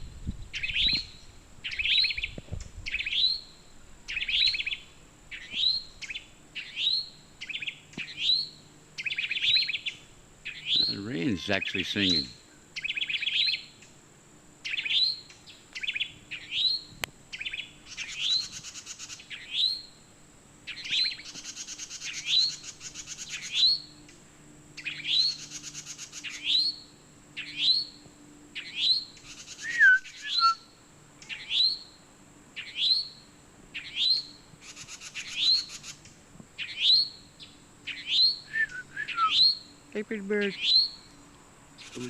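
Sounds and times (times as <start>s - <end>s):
buzzy bird chatters: 10.7s - 12.3s, 41.8s - 42.0s
short rising bird call: 29.6s - 30.6s, 38.4s - 39.5s
low falling whistle: 29.7s - 30.6s, 38.5s - 39.4s.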